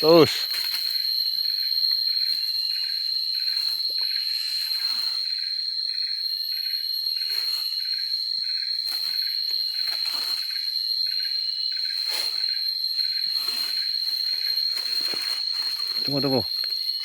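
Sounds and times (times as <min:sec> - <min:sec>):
insects chirring: 0:00.0 - 0:17.0
rustling and scuffing: 0:13.2 - 0:17.0.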